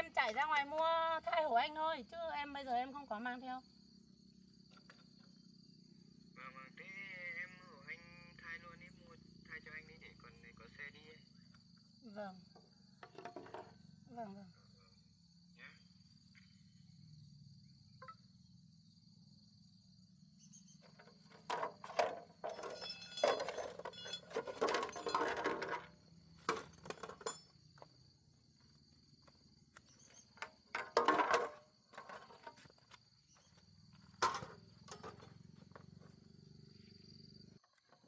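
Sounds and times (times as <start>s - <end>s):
knocking and clattering: 13.0s - 13.7s, 20.9s - 27.5s, 30.4s - 32.7s, 34.2s - 35.4s
insect chirring: 13.7s - 24.3s, 25.8s - 38.0s.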